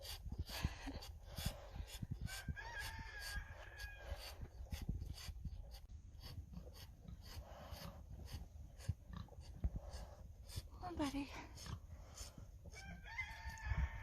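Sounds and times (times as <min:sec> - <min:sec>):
rooster crowing: 0:02.4 - 0:04.0, 0:12.8 - 0:14.0.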